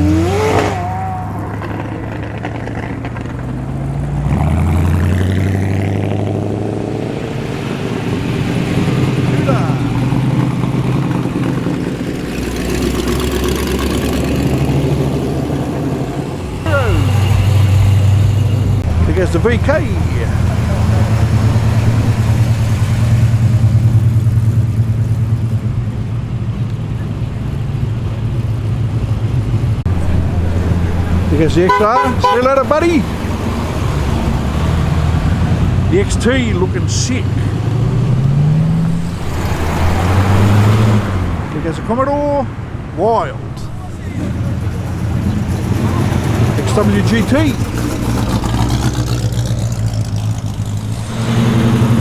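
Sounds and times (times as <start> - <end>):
car engine rumbling past: 0.0 - 52.0
car engine driving past: 29.8 - 52.0.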